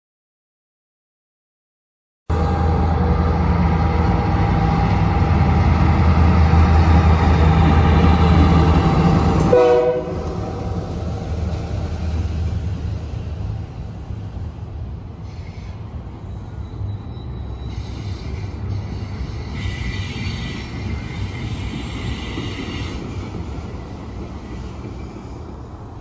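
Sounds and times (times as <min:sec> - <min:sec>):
diesel locomotive engine: 0:02.3 - 0:26.0
high wheel squeal: 0:15.2 - 0:23.3.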